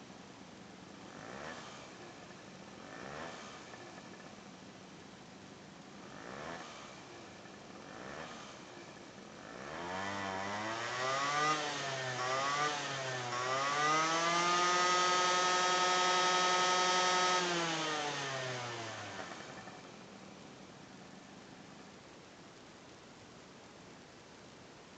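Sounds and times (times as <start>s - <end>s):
scooter engine revving: 1.0s - 4.4s, 5.9s - 20.4s.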